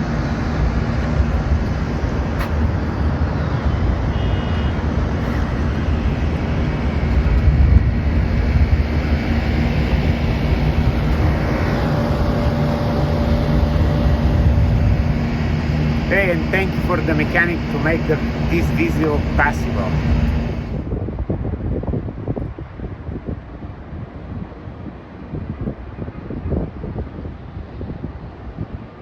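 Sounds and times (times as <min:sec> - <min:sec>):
faint steady hum: 0:00.0 - 0:20.9
city traffic rumble: 0:00.0 - 0:29.0
wind: 0:00.0 - 0:29.0.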